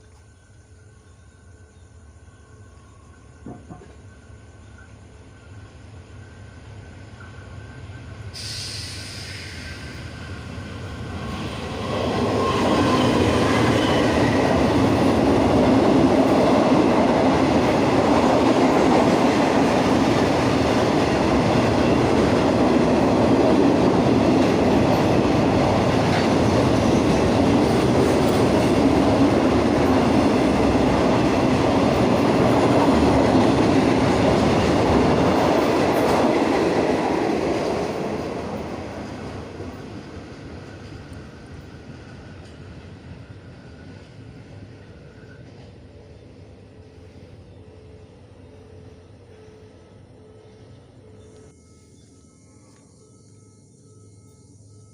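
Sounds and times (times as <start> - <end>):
train wheels rumbling on rails: 3.4 - 51.5.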